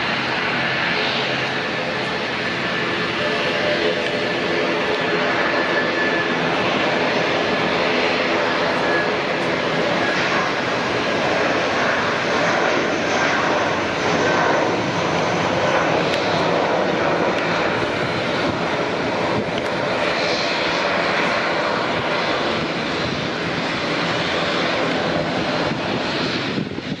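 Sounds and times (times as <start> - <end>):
airliner engines running: 0.0 - 27.0.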